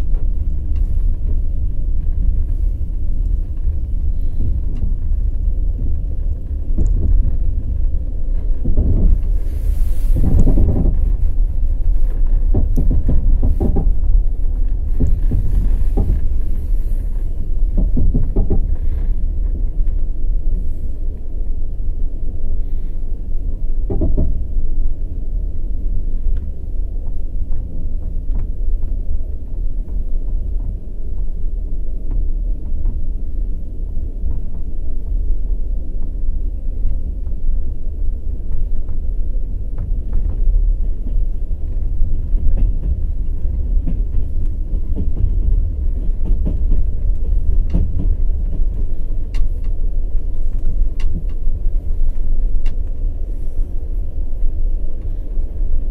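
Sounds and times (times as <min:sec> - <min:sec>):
train wheels rumbling on track: 0:00.0 - 0:55.9
wheels clacking over rail joints: 0:39.8 - 0:53.2.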